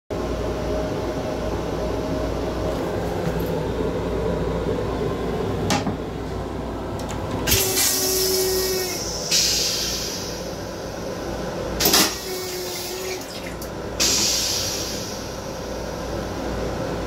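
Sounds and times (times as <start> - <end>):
loud hiss: 7.5 - 10.5, 14.0 - 15.4.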